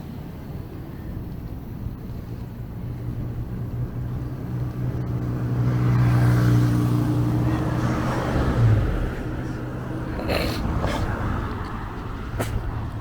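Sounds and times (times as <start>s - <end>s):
tyre noise on road: 0.0s - 13.0s
vehicle engine hum: 0.0s - 13.0s.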